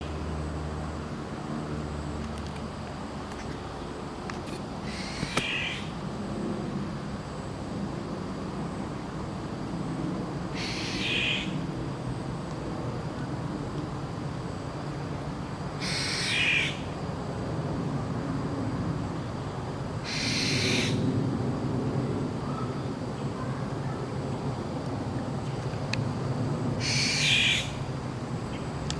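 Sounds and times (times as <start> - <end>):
bird's harsh raspy call: 4.8 - 5.9, 10.6 - 11.6, 15.8 - 16.9, 20.0 - 21.0, 26.8 - 27.8
steady low rumble: 20.9 - 28.9.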